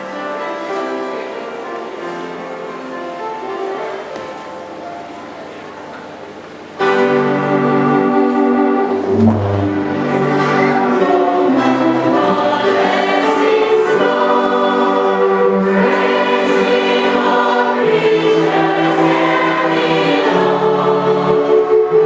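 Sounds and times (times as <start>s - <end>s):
choir singing a hymn: 6.8s - 22.0s.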